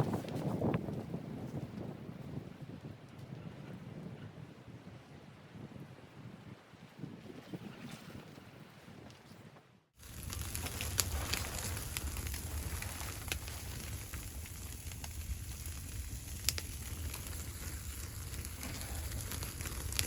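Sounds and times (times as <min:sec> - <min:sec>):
low rumble of fire: 0:00.0 - 0:07.6, 0:10.0 - 0:20.0
wood fire crackling: 0:10.0 - 0:20.0
wood popping: 0:10.0 - 0:20.0.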